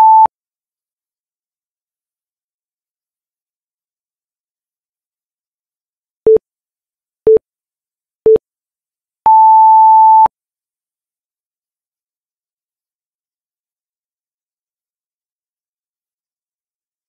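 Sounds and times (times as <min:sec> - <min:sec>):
short low timer beeps: 0:00.0 - 0:00.3.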